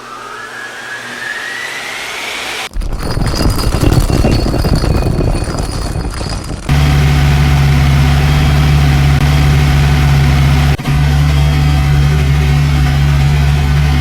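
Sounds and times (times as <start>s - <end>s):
loud rough rattling: 2.7s - 10.8s
car engine idling: 6.6s - 14.0s.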